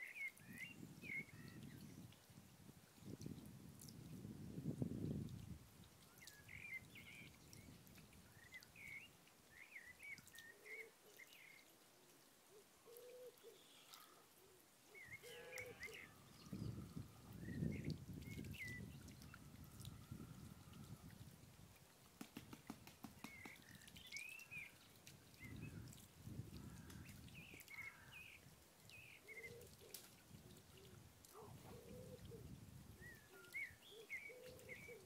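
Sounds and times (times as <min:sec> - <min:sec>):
birds chirping: 0:15.0 - 0:19.4.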